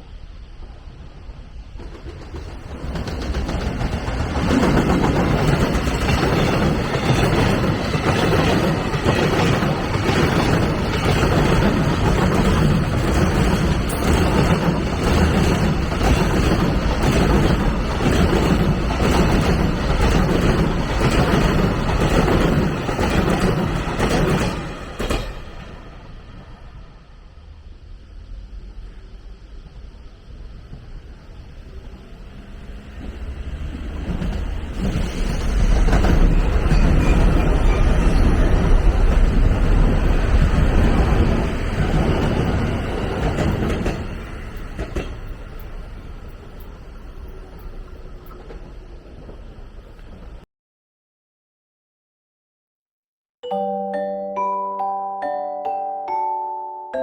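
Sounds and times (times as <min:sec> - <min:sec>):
train wheels clattering: 0:01.6 - 0:25.9, 0:32.7 - 0:50.2.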